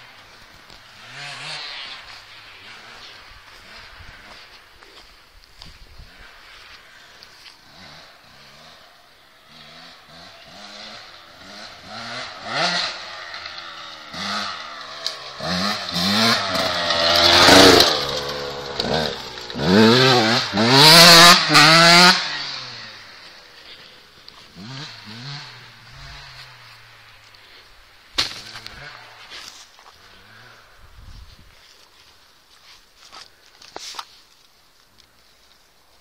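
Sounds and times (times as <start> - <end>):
dirt bike engine revving: 0.0 - 5.0, 6.0 - 31.0.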